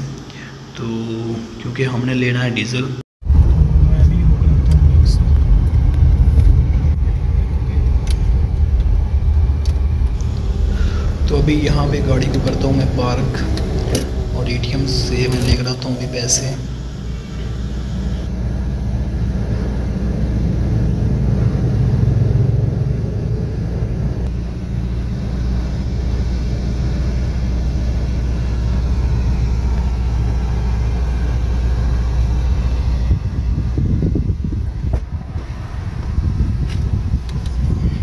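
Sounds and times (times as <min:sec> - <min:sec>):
car engine idling: 0:03.2 - 0:37.8.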